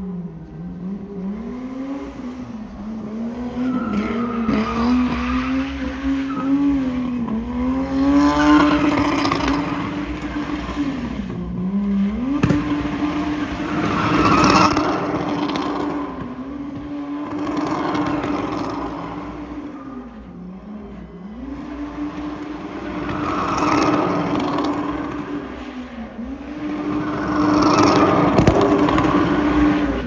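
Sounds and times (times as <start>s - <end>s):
car engine at high revs: 0.0s - 30.0s
tyre squeal: 1.5s - 11.2s, 12.4s - 20.4s, 22.6s - 25.6s.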